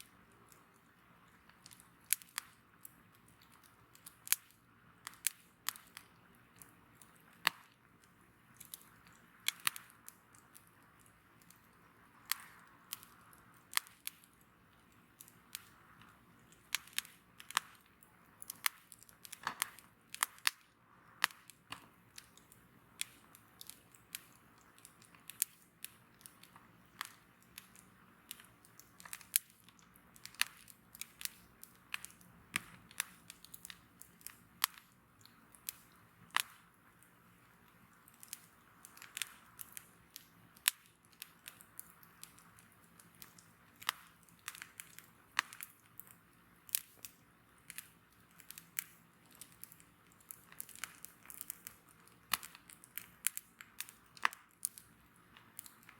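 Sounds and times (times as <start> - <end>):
bonfire crackling and popping: 0.0 - 55.9
soft hiss of burning fire: 0.0 - 55.9.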